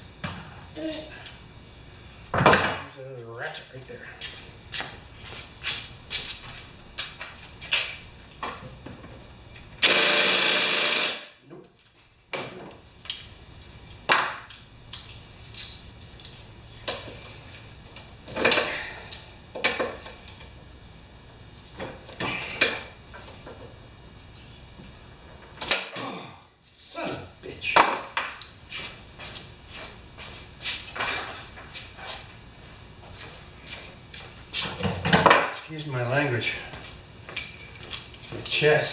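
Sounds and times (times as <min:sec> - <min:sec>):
loud burst of noise: 0:09.8 - 0:11.4.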